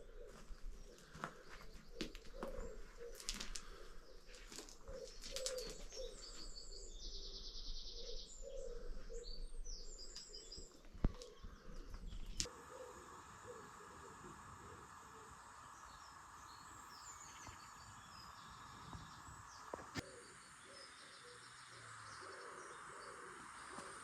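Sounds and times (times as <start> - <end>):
songbirds chirping and trilling: 0.0 - 24.0
pigeon cooing: 4.8 - 6.4, 12.4 - 15.6
steady hiss: 9.9 - 24.0.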